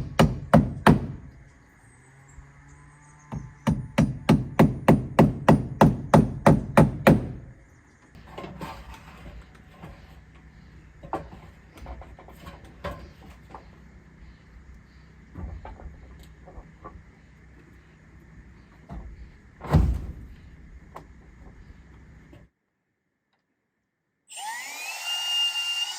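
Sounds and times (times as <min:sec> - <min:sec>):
hammer driving nail into wood: 0:00.0 - 0:01.2, 0:03.4 - 0:07.4.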